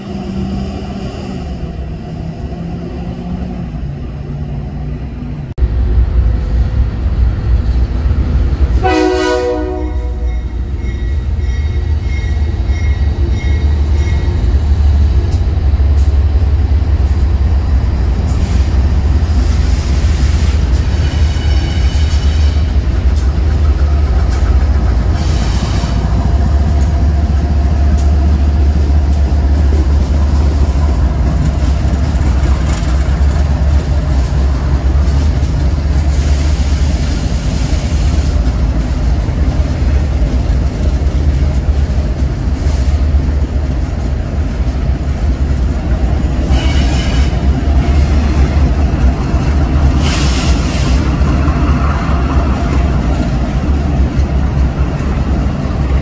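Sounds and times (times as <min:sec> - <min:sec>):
freight train rumbling on rails: 0:00.0 - 0:56.0
train wheels squealing: 0:10.2 - 0:15.4, 0:18.3 - 0:22.8, 0:25.1 - 0:26.2, 0:46.4 - 0:48.5.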